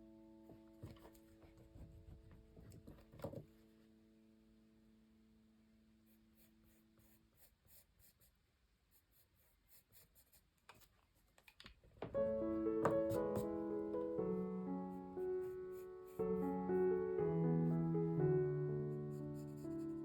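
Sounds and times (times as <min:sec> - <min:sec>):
pencil scratching on paper: 0:06.1 - 0:11.4, 0:12.9 - 0:13.5, 0:14.9 - 0:17.0, 0:18.8 - 0:20.0.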